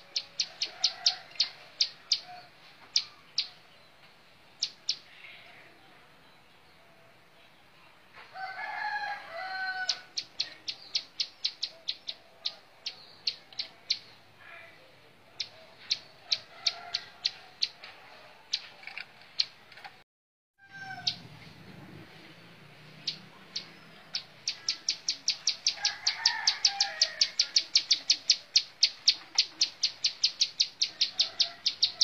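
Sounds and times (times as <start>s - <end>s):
rooster crowing: 0.5s - 2.5s, 8.3s - 10.2s, 20.6s - 21.3s, 25.7s - 27.6s, 30.9s - 32.0s.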